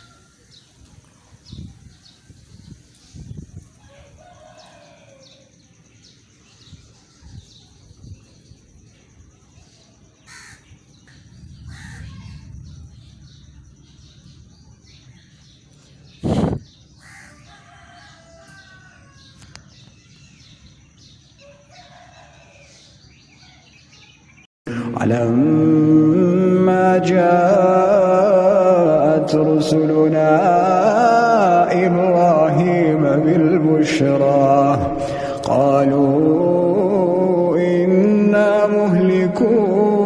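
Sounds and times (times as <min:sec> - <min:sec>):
rooster crowing: 0:00.0 - 0:00.7, 0:03.7 - 0:05.7, 0:16.3 - 0:19.8, 0:21.4 - 0:23.7
wind rumble on microphone: 0:00.0 - 0:04.8, 0:06.6 - 0:09.4, 0:10.7 - 0:16.9.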